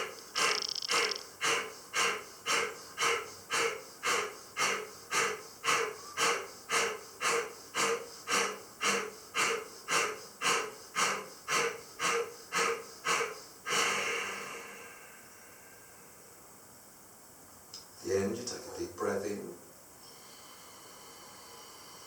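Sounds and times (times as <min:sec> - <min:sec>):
forceful nasal exhalations: 0:00.0 - 0:15.9
long drawn-out breath: 0:01.4 - 0:16.3, 0:20.0 - 0:22.0.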